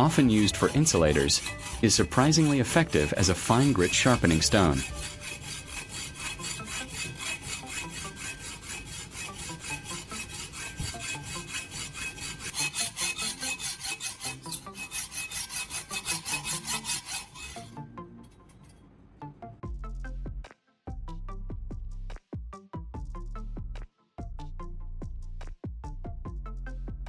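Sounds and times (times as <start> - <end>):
scraping strokes on ceramic: 0.0 - 17.8.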